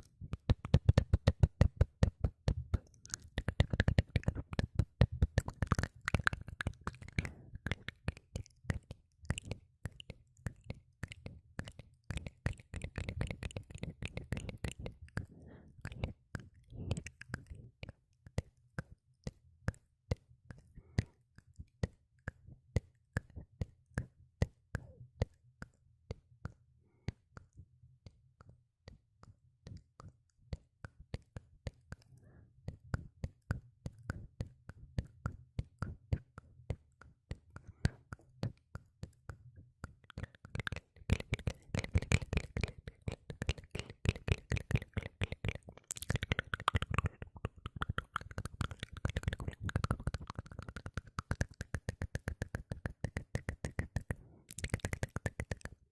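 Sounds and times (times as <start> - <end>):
wet mouth clicks and pops: 0.0 - 27.6, 28.4 - 55.9.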